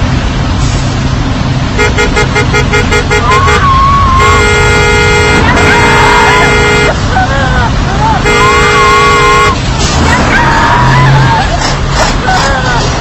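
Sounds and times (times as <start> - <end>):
traffic rumble: 0.0 - 13.0
long steady horn blast: 1.8 - 7.1, 8.2 - 9.6.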